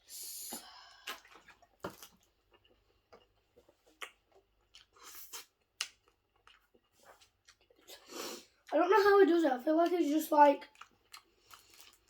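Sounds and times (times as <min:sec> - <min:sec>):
person chewing: 0:00.5 - 0:08.7, 0:10.6 - 0:12.0.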